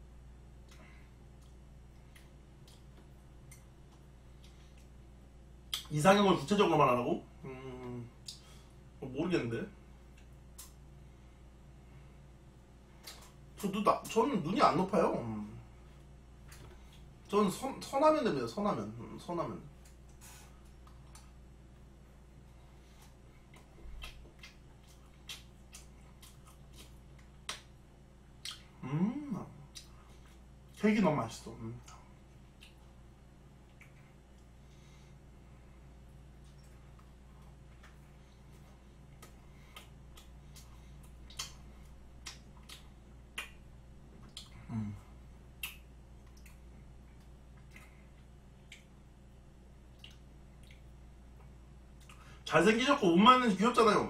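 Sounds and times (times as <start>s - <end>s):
faint steady low hum: 0.0s - 54.0s
person chewing wet clicks: 0.6s - 5.0s, 5.6s - 5.9s, 7.8s - 8.5s, 10.1s - 10.8s, 13.0s - 14.2s, 19.7s - 21.9s, 22.9s - 28.8s, 29.6s - 30.9s, 31.8s - 34.6s, 36.2s - 44.8s, 45.4s - 49.2s, 49.8s - 52.3s
person humming briefly: 7.4s - 8.2s, 28.8s - 29.5s.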